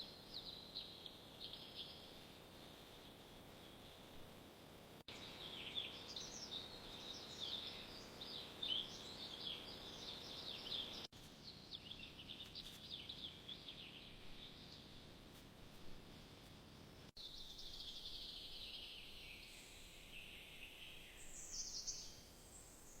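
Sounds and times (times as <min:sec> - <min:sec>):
songbirds chirping: 0:00.0 - 0:04.4, 0:05.0 - 0:23.0
faint outdoor background noise: 0:00.0 - 0:23.0.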